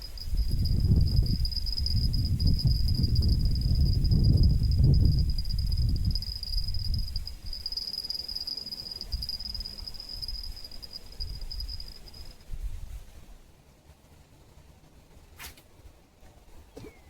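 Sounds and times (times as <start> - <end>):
insects trilling: 0.0 - 12.4.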